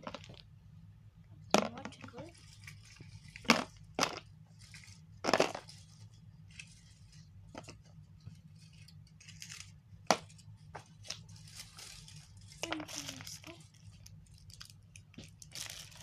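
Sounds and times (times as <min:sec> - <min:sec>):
packaging being handled: 0:10.9 - 0:16.0.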